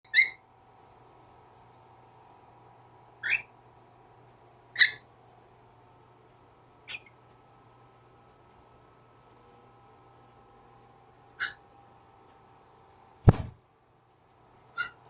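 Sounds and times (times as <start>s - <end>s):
cockatiel chirping: 0.1s - 0.5s, 3.2s - 3.5s, 4.7s - 5.1s, 6.9s - 7.2s, 11.4s - 11.6s, 14.7s - 15.0s.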